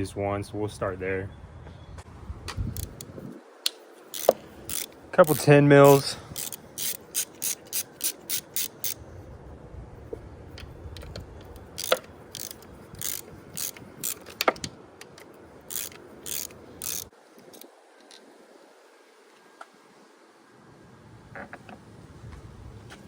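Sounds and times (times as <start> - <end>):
socket ratchet clicking: 2.7 - 3.1, 3.7 - 9.0, 10.6 - 17.7.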